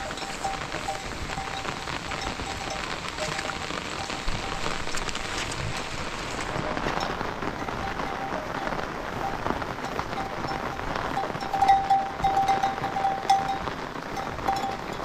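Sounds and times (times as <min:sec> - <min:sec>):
heavy rain pattering: 0:00.0 - 0:15.0.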